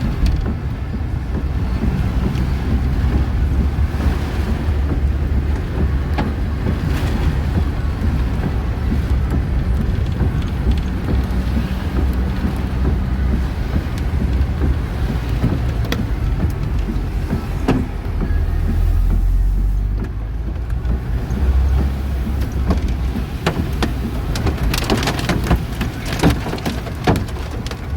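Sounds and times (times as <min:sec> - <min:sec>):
car engine and road drone: 0:00.0 - 0:27.9
light clicks and taps: 0:00.0 - 0:27.9.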